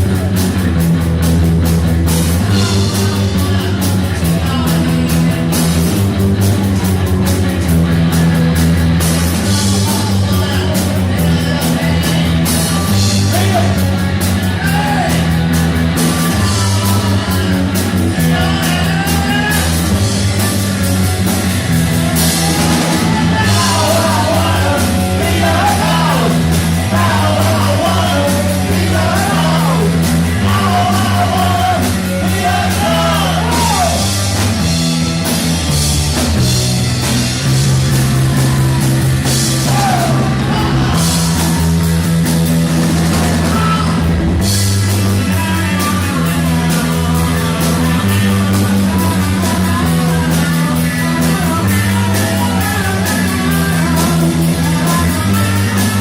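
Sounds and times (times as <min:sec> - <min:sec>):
bass line: 0:00.0 - 0:56.0
electric guitar: 0:00.0 - 0:56.0
person singing: 0:14.4 - 0:20.8, 0:22.1 - 0:34.5, 0:37.7 - 0:42.3, 0:45.0 - 0:56.0.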